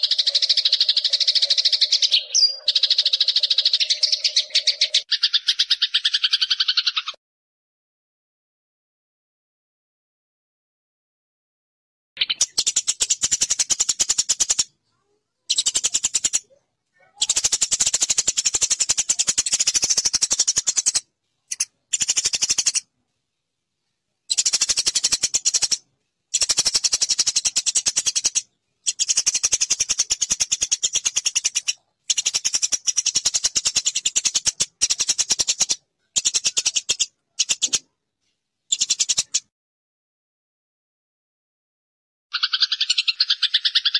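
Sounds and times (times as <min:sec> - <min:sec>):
sparrow chirping chatter: 0:00.0 - 0:07.2, 0:12.2 - 0:22.9, 0:24.2 - 0:38.0, 0:38.7 - 0:39.5, 0:42.3 - 0:43.9.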